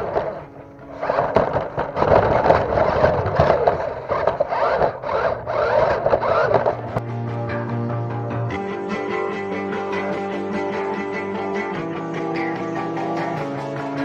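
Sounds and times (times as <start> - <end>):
toy car electric motor whining: 0.0 - 7.0.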